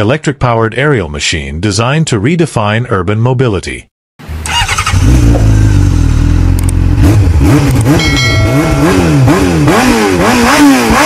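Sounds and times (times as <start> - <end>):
motorcycle engine revving: 4.2 - 11.0.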